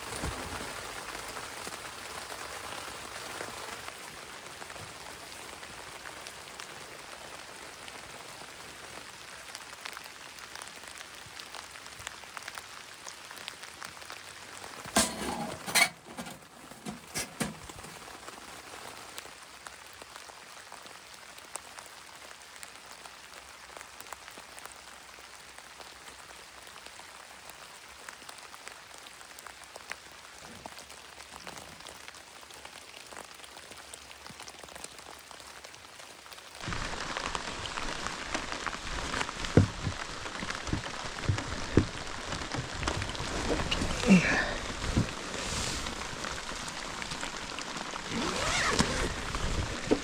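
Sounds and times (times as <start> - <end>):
rain falling: 0.0 - 50.0.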